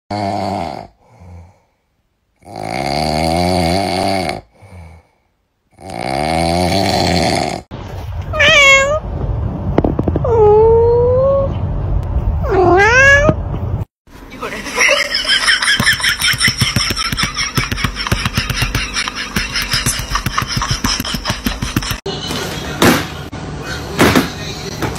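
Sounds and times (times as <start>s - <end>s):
kitten snoring: 0.1s - 1.6s, 2.4s - 5.0s, 5.7s - 7.7s
cat meowing: 8.3s - 9.0s, 10.2s - 11.6s, 12.4s - 13.4s.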